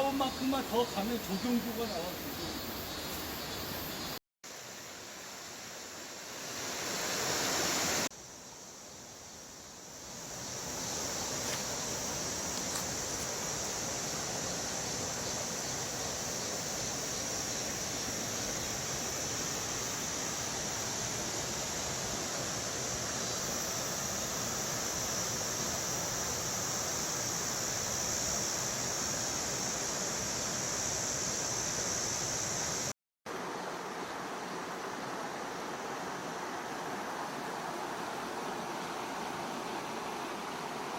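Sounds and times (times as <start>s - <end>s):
stream rushing over rocks: 33.3s - 40.9s.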